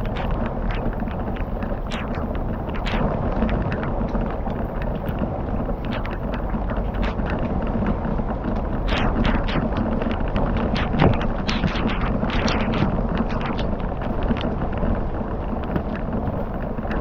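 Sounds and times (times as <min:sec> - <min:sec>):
campfire crackling: 0:00.0 - 0:17.0
low rumble: 0:00.0 - 0:17.0.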